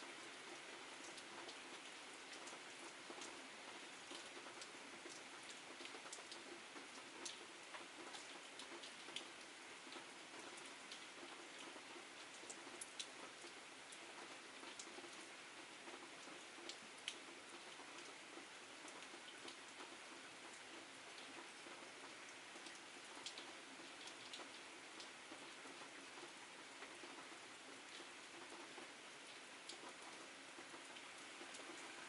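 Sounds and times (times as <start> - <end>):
faint rain falling: 0.0 - 32.0.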